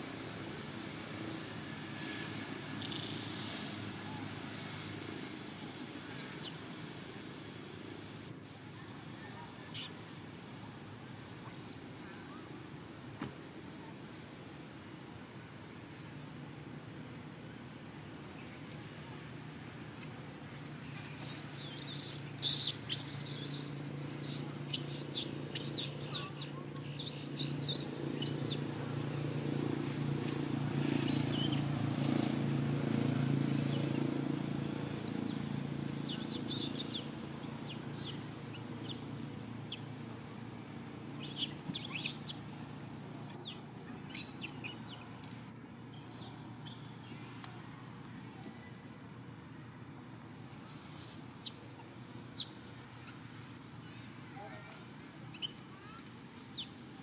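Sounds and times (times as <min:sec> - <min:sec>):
small birds twittering: 0:19.9 - 0:29.2, 0:30.8 - 0:31.7, 0:35.0 - 0:40.0, 0:41.2 - 0:42.7, 0:43.3 - 0:47.2, 0:50.5 - 0:51.6, 0:52.3 - 0:56.8.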